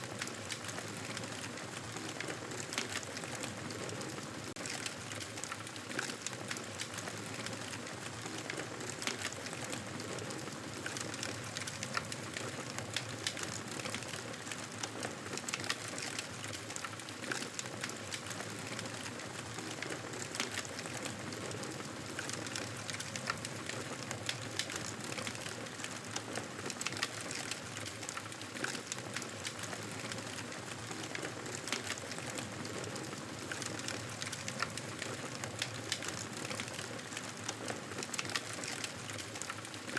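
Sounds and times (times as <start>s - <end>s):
campfire crackling and popping: 10.8s - 39.9s.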